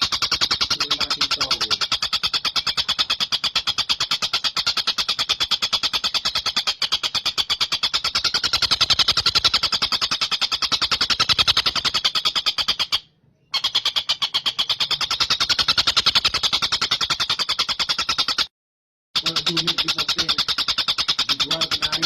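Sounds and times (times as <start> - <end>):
kingfisher rattling trill: 0.0 - 13.0, 19.2 - 22.0.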